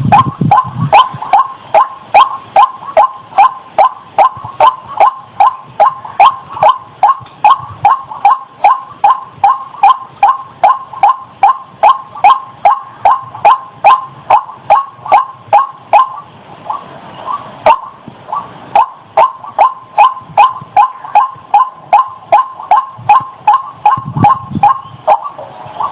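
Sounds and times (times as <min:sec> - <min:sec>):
waterhen calling harsh notes: 0:00.0 - 0:25.9.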